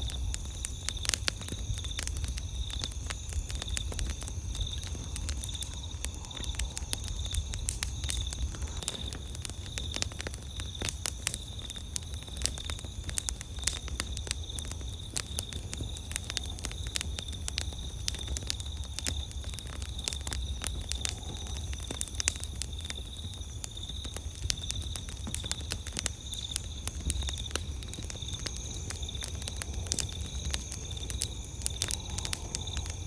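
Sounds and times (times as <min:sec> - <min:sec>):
campfire crackling and popping: 0:00.0 - 0:33.0.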